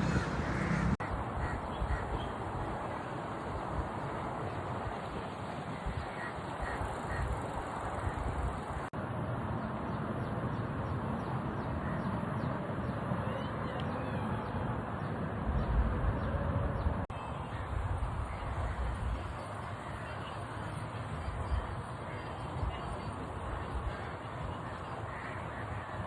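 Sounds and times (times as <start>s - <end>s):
wind rumble on microphone: 0.0s - 8.9s.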